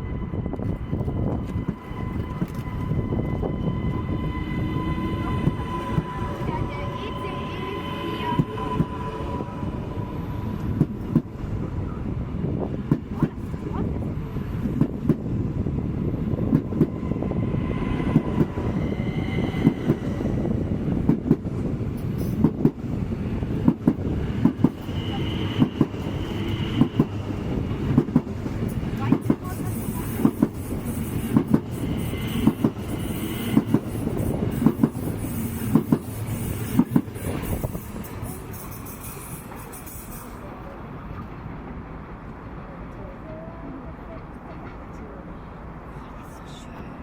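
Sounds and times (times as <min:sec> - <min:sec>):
train rumble: 0:00.0 - 0:47.0
high wheel squeals: 0:17.0 - 0:20.5, 0:29.6 - 0:40.4
train wheels clacking on rail joints: 0:25.6 - 0:40.4.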